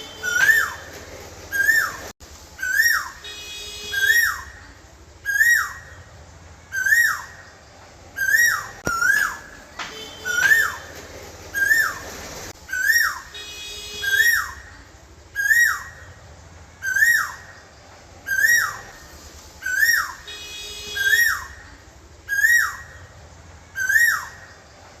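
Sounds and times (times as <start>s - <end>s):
bird whistled call: 0.0s - 0.9s, 1.5s - 4.6s, 5.2s - 6.0s, 6.7s - 7.5s, 8.2s - 10.9s, 11.5s - 14.7s, 15.4s - 16.0s, 16.8s - 17.6s, 18.3s - 19.0s, 19.6s - 21.6s, 22.3s - 23.0s, 23.8s - 24.6s.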